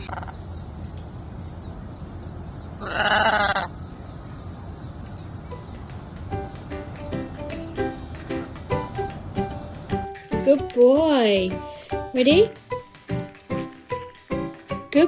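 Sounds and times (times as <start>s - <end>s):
wavering bleat-like animal call: 2.8s - 3.7s.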